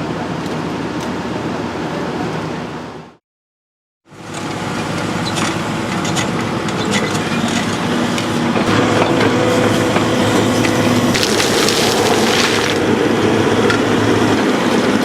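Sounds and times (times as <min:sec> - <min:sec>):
excavator diesel engine under load: 0:04.1 - 0:15.0.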